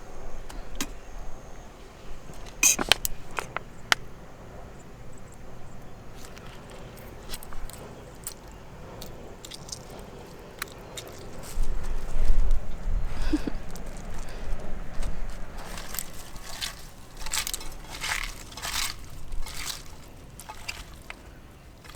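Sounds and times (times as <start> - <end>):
sharp clicks and crinkling: 2.4 - 4.1, 6.2 - 12.6, 13.3 - 21.9.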